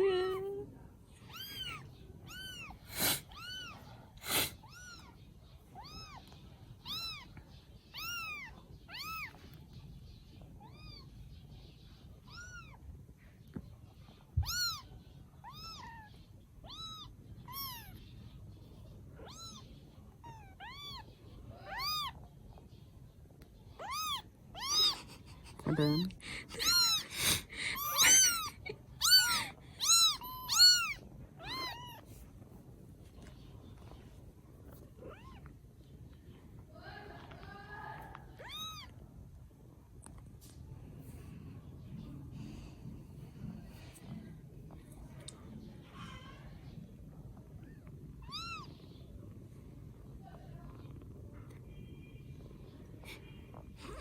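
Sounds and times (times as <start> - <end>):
kittens mewing: 1.2 - 9.6, 14.3 - 18.1, 19.1 - 22.3, 23.7 - 32.2, 36.5 - 39.2, 47.5 - 49.2, 52.7 - 54.0.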